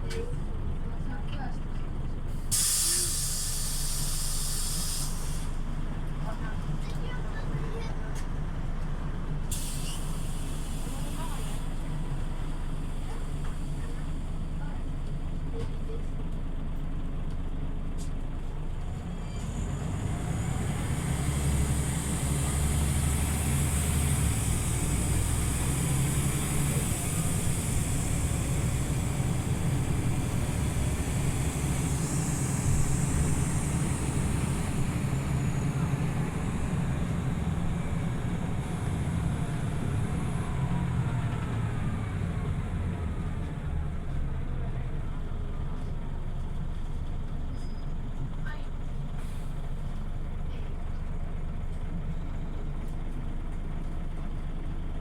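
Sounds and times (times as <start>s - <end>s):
bus diesel engine running: 0.0s - 55.0s
road noise: 17.1s - 55.0s.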